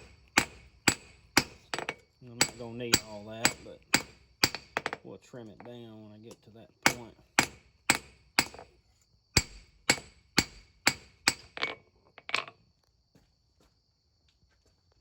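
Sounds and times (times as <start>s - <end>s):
hammer ringing on steel anvil: 2.4s - 4.6s.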